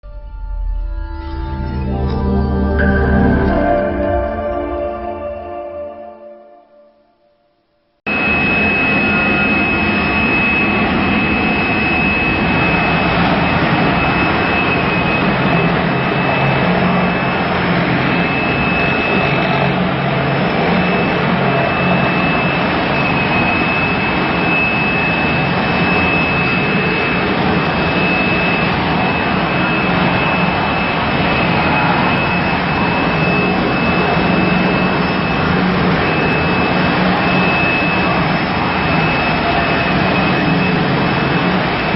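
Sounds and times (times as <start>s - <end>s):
concrete floor grinder whining: 8.1s - 41.9s.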